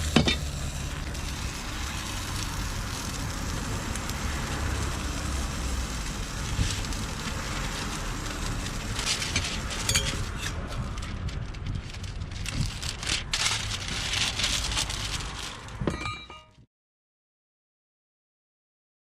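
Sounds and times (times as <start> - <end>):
batter sizzling on griddle: 0.0 - 15.8
sharp clicks and scrapes: 6.4 - 15.8.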